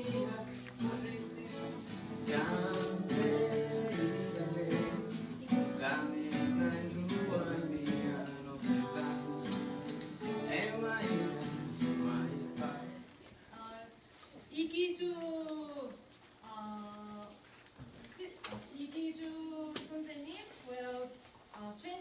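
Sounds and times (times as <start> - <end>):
acoustic guitar music: 0.0 - 13.2.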